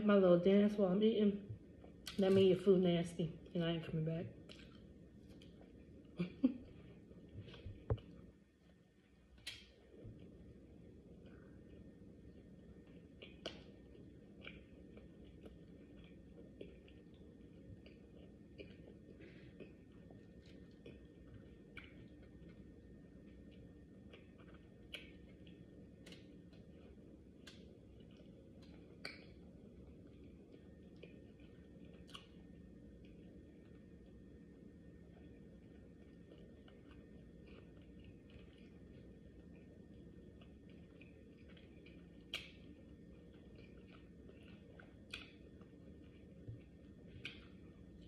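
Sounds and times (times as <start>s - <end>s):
low room hum: 0.0s - 48.0s
faint chewing: 3.3s - 48.0s
person eating: 9.4s - 34.0s, 35.0s - 48.0s.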